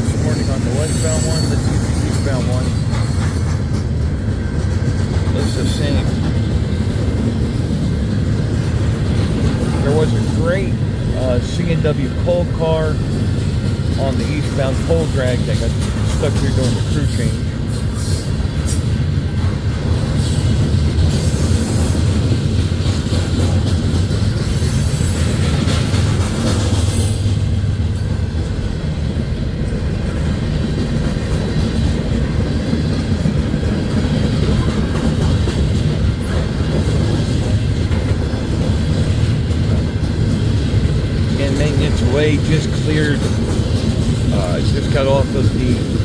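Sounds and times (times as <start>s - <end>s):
train wheels rumbling on rail: 0.0s - 46.0s
high-pitched wheel squeal: 0.3s - 2.4s.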